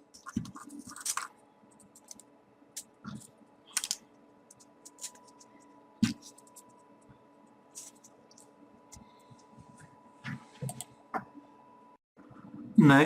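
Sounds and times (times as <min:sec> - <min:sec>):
sharp paper crinkle: 0:00.2 - 0:01.3
paper rustling and clicking: 0:00.2 - 0:02.2.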